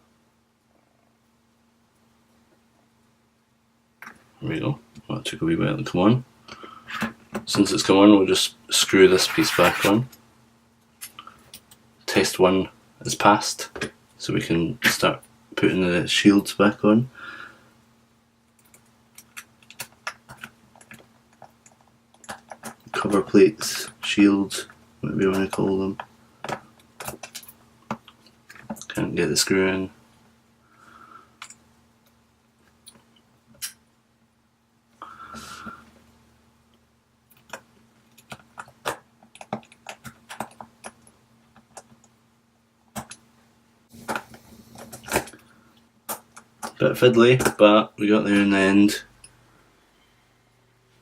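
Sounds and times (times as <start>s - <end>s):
scraping rustle: 8.8s - 10.0s.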